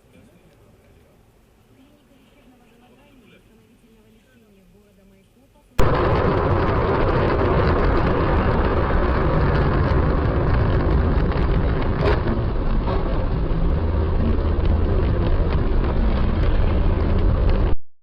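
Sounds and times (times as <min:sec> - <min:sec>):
vehicle engine and road noise: 0:05.8 - 0:17.8.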